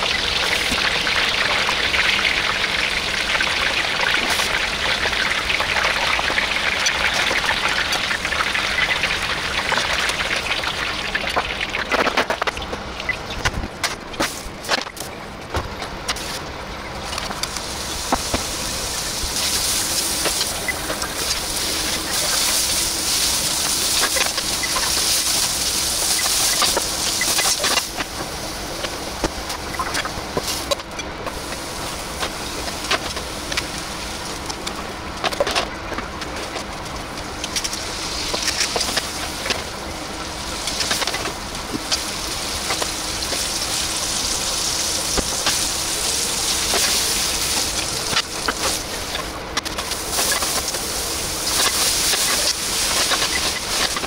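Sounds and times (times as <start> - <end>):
food sizzling in oil: 0.0 - 12.2, 17.4 - 34.6, 37.2 - 54.0.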